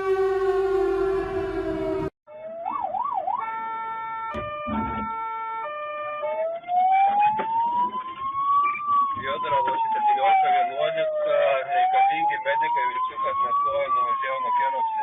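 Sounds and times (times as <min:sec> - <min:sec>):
emergency vehicle siren: 0:00.0 - 0:15.0
sharp knocks: 0:04.3 - 0:05.2.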